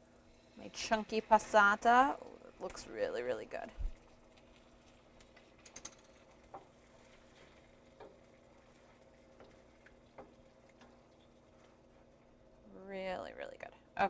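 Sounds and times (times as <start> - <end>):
faint steady hum: 0.0 - 14.0
sauce cooking in oil clicking: 3.6 - 12.3.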